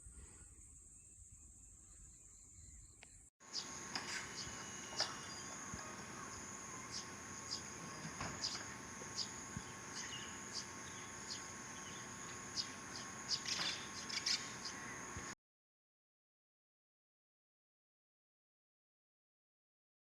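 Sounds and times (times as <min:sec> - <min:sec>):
insect chirps: 0:00.0 - 0:15.4
insects droning: 0:00.0 - 0:15.4.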